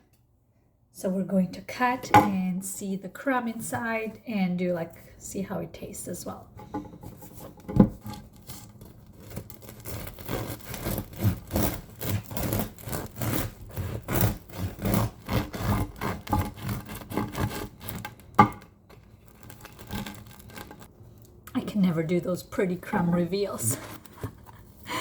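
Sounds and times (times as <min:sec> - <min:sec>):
bread knife sawing crusty loaf: 0:08.4 - 0:18.2.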